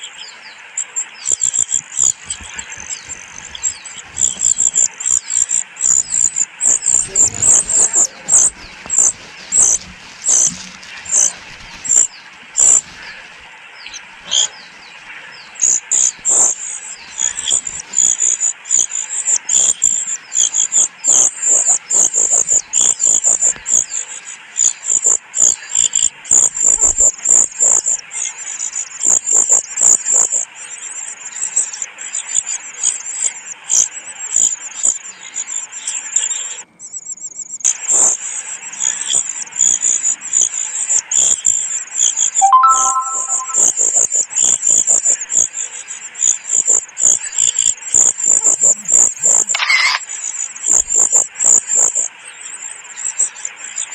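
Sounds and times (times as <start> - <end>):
cuckoo chick begging calls: 48.3 - 50.0.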